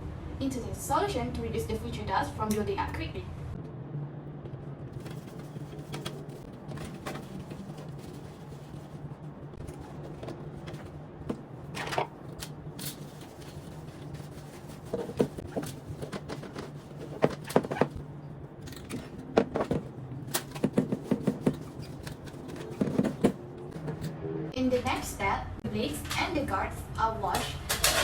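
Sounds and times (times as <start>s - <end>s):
low hum: 0.0s - 20.6s
plastic fan parts clicking: 5.0s - 18.0s, 18.6s - 24.1s.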